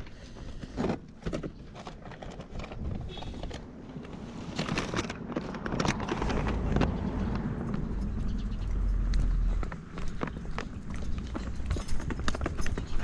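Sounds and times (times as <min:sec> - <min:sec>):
clicks and rustles: 0:00.0 - 0:13.0
footsteps walking: 0:05.5 - 0:13.0.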